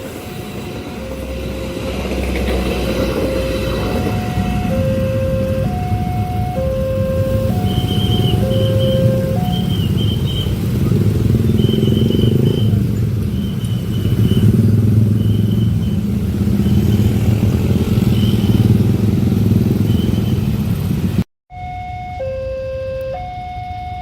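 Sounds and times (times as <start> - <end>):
diesel train engine rumble: 0.0 - 18.7
crossing alarm beeping: 0.0 - 18.8, 21.5 - 24.0.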